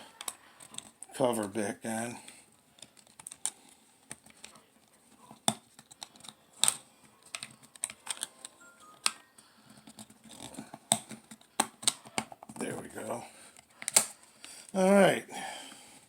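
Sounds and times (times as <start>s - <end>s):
plastic clicks and rattles: 0.2s - 1.1s, 2.8s - 4.6s, 5.3s - 12.6s
plastic snaps: 5.3s - 9.2s, 9.8s - 12.6s, 13.6s - 14.6s.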